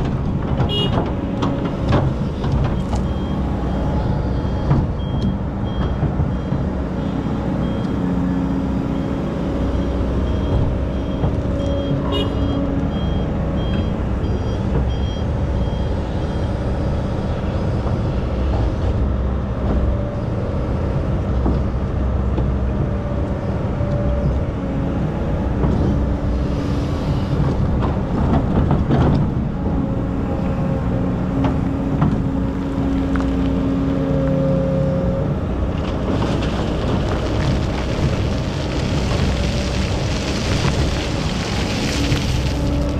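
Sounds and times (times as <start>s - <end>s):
excavator diesel engine working: 0.0s - 42.9s
reversing alarm beeping: 8.9s - 16.6s.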